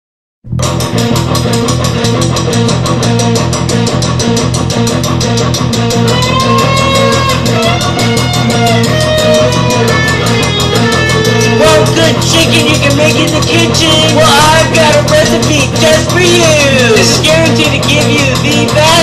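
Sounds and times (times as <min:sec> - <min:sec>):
lead guitar bending: 0:00.5 - 0:19.0
rock band playing: 0:00.5 - 0:19.0
fast drum beat: 0:00.8 - 0:19.0.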